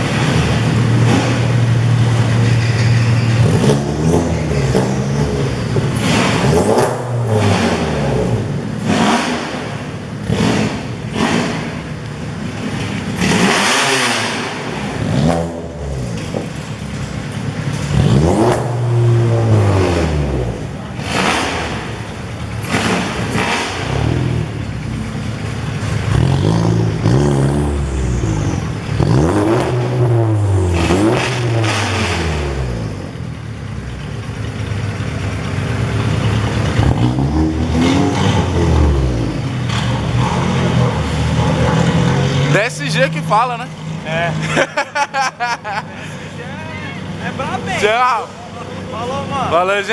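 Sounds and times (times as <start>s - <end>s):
cars passing at speed: 0.0s - 33.5s.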